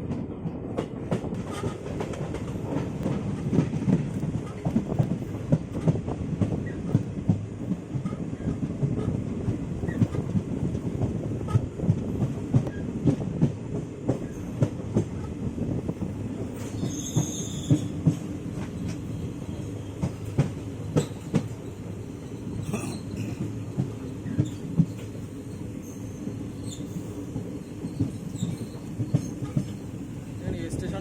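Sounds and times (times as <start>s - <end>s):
train low rumble: 0.0s - 31.0s
high wheel squeal: 25.5s - 29.8s.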